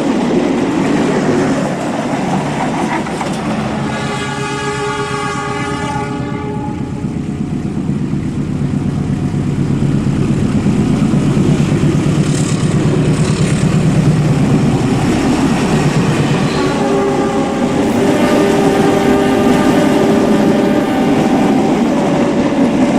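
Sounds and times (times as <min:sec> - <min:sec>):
train rumbling on track: 0:00.0 - 0:22.9
diesel locomotive horn: 0:03.6 - 0:07.6, 0:15.4 - 0:22.9.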